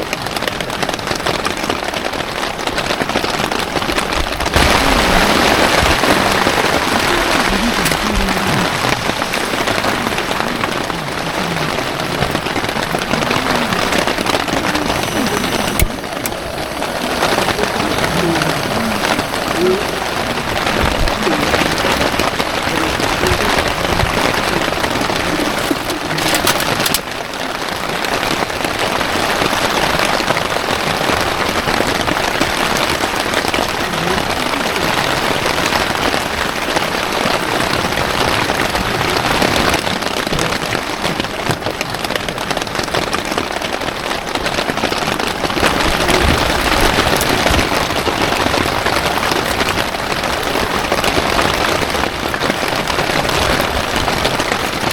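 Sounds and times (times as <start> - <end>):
heavy rain pouring: 0.0 - 54.9.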